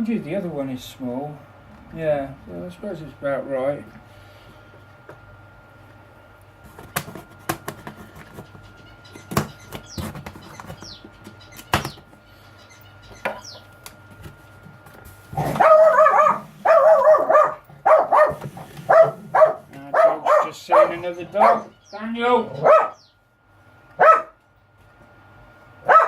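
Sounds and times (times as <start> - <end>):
dog barking and yelping: 15.4 - 23.1, 24.0 - 24.4.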